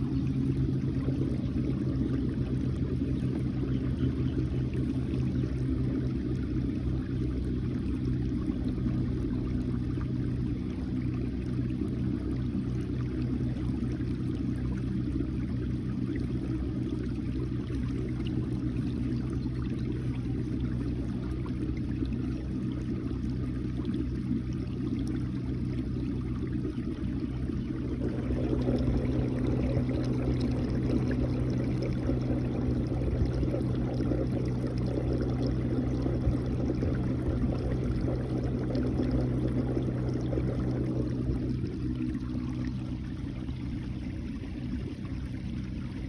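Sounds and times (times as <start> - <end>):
low rumble: 0.0 - 46.0
water trickling around kayak: 0.0 - 46.0.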